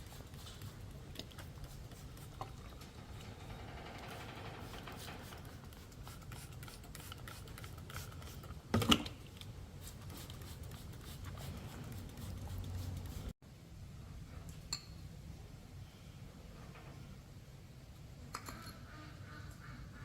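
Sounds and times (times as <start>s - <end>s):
metallic clatter: 1.7s - 6.1s.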